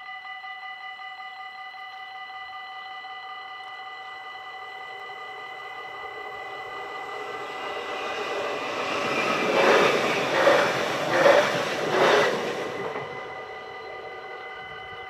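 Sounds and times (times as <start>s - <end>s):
crossing warning bell ringing: 0.0s - 15.0s
train passing at speed: 4.6s - 15.0s.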